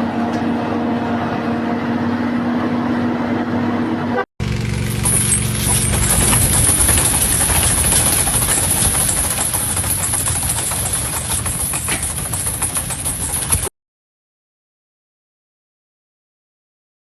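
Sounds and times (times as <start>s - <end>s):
low engine hum: 0.0s - 13.5s
machinery clatter: 4.4s - 13.7s.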